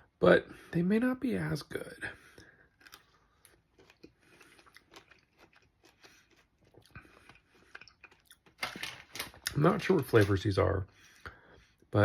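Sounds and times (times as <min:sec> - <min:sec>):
candy crunching while chewing: 0:02.7 - 0:10.2.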